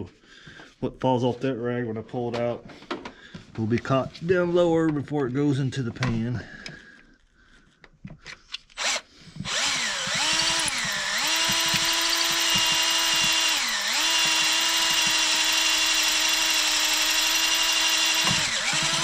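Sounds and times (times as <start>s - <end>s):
electric drill running: 8.8s - 19.0s.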